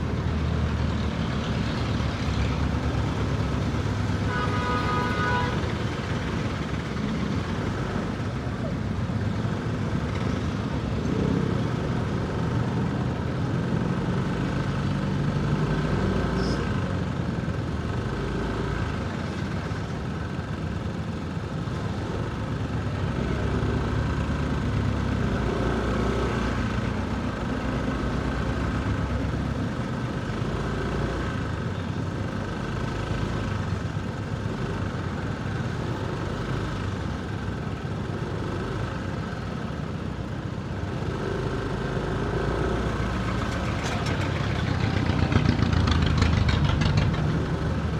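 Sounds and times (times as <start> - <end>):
city traffic noise: 0.0 - 47.9
motorcycle engine running: 37.0 - 47.9.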